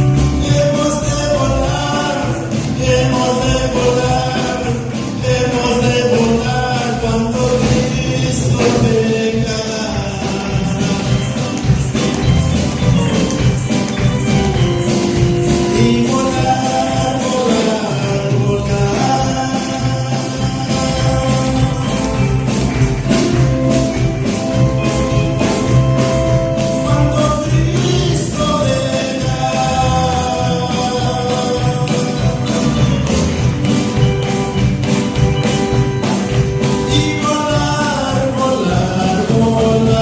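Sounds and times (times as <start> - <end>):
people singing: 0.0 - 25.0, 26.0 - 40.0
band playing gospel music: 0.0 - 40.0
tambourine beat: 0.0 - 40.0.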